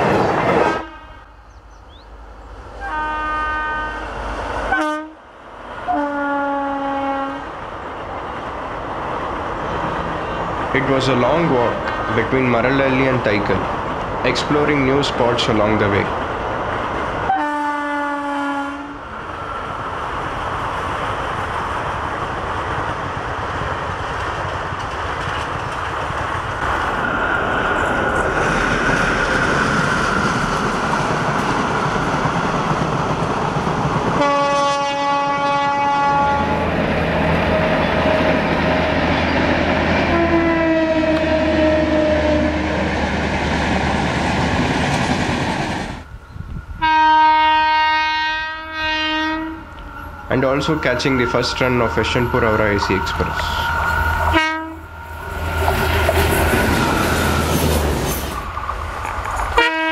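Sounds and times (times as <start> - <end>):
train rumbling on track: 0.0 - 59.9
locomotive horn: 0.6 - 1.4, 2.8 - 5.2, 5.9 - 7.5, 17.3 - 19.0, 34.2 - 36.7, 40.0 - 42.8, 46.8 - 55.9, 59.6 - 59.9.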